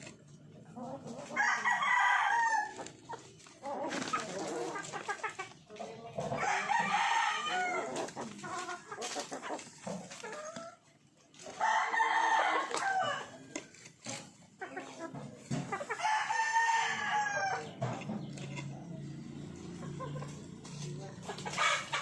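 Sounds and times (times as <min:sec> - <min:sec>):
chickens clucking: 0:00.0 - 0:22.0
rooster crowing: 0:01.4 - 0:02.8, 0:06.4 - 0:07.9, 0:11.6 - 0:13.4, 0:16.0 - 0:17.7.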